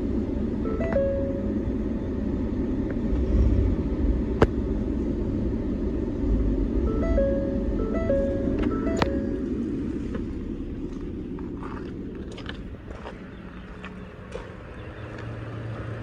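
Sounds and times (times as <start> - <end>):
vehicle engine rumble: 0.0 - 16.0
two-note tones: 0.5 - 2.2, 6.8 - 10.6.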